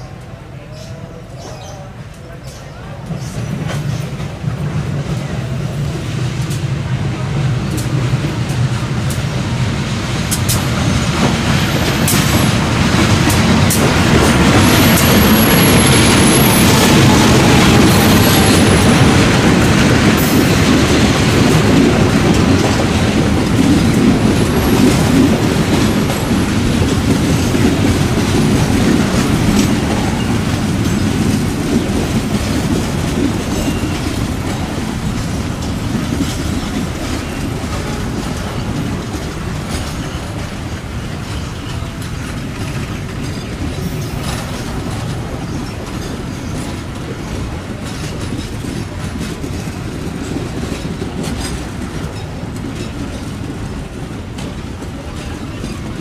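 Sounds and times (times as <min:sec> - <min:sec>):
train rumble: 0:00.0 - 0:56.0
train wheels clicking over rail joints: 0:01.4 - 0:56.0.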